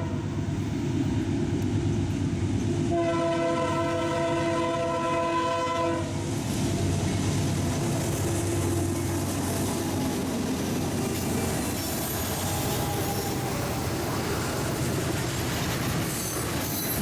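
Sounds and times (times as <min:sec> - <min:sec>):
train rumble: 0:00.0 - 0:17.0
locomotive air horn blast: 0:02.9 - 0:06.2.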